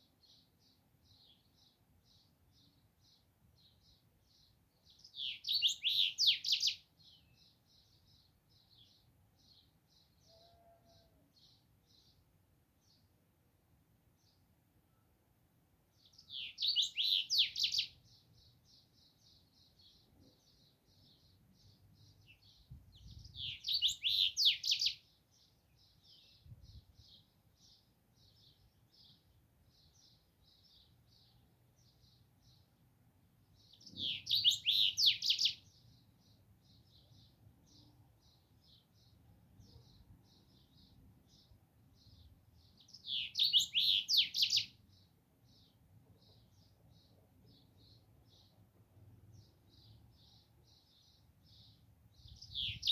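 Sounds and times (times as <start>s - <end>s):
songbird singing high phrase: 0.2s - 12.2s, 16.0s - 32.7s, 33.6s - 48.5s, 49.3s - 52.9s
soft short bird chirps: 42.9s - 44.7s, 52.4s - 52.9s.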